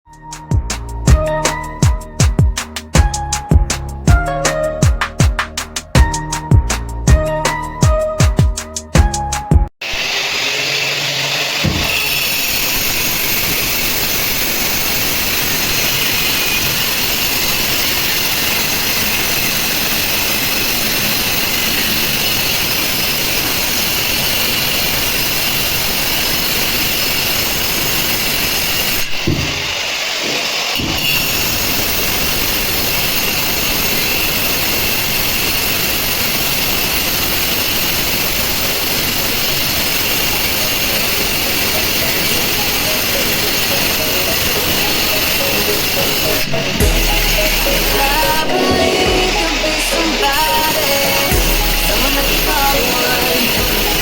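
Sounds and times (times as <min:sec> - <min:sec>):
loud machine motor running: 0:09.8 - 0:54.0
knocks: 0:29.2 - 0:29.7.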